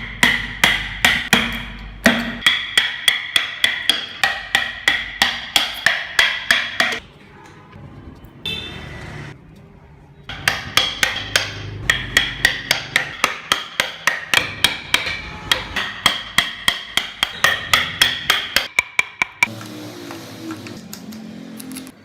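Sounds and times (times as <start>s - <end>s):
hammer tapping chisel into wood: 10.3s - 19.6s.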